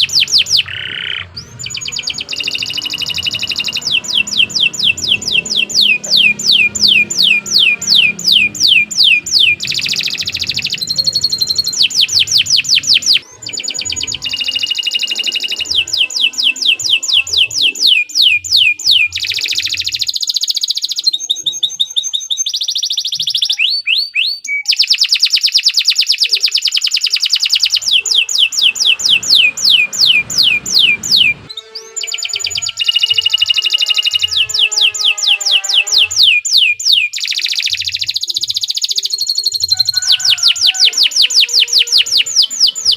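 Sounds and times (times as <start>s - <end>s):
canary singing: 0.0s - 42.9s.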